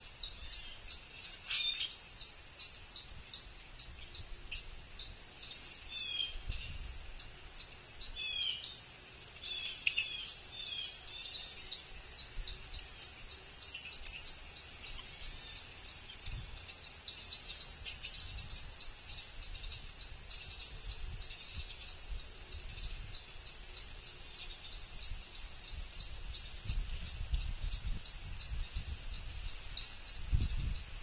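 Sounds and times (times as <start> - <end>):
high chip notes of songbirds: 0.0 - 8.8, 9.4 - 31.0
slurred bird chirps: 0.2 - 8.8, 9.4 - 30.9.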